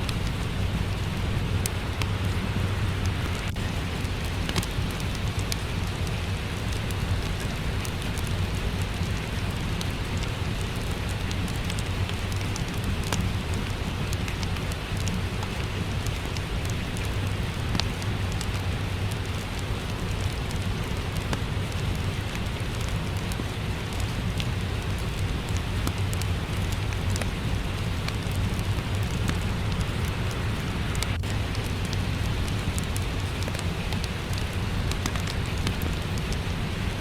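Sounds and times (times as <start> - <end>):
steady rain: 0.0 - 37.0
wood fire crackling: 0.0 - 37.0.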